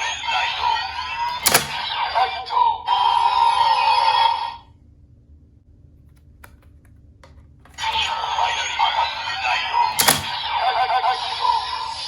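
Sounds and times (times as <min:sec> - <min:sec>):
processed announcement voice: 0:00.0 - 0:04.7, 0:07.8 - 0:12.0.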